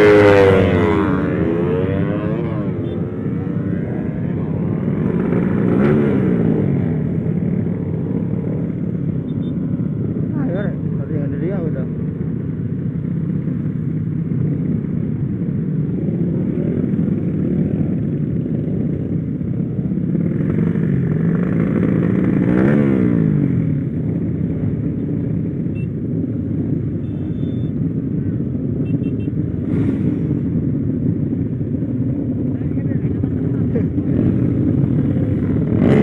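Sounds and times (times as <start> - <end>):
louder engine passing by: 0.0 - 9.2, 32.5 - 36.0.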